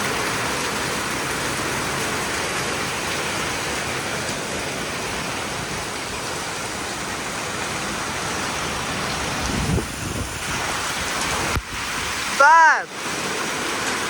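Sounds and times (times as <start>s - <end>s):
heavy rain and wind: 0.0s - 14.0s.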